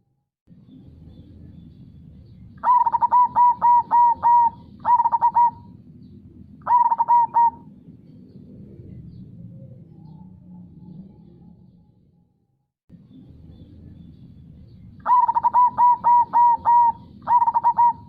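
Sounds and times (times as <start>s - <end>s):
dove cooing: 2.6s - 5.8s, 6.6s - 7.8s, 15.0s - 18.0s.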